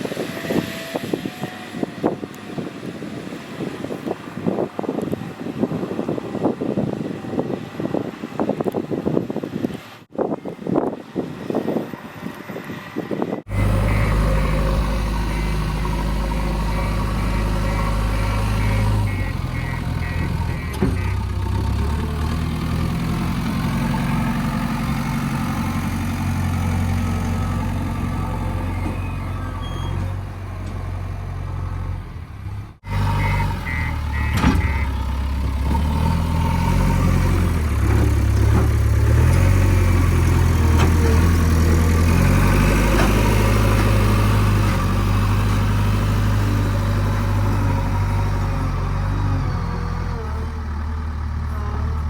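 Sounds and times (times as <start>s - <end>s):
heavy diesel engine running: 13.5s - 52.0s.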